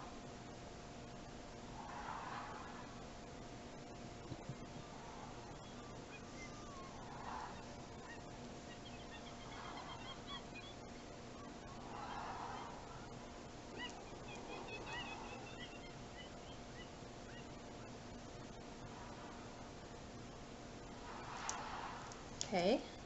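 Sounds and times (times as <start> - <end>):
steady low hum: 0.0 - 23.0
faint bird chirps: 3.9 - 19.4.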